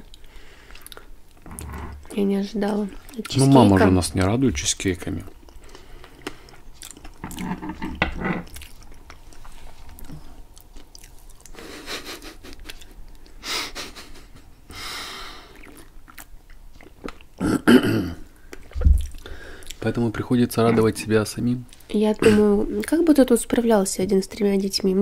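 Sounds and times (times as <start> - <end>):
people chewing: 0.0 - 4.0, 5.1 - 14.5, 15.2 - 17.6, 18.3 - 21.1.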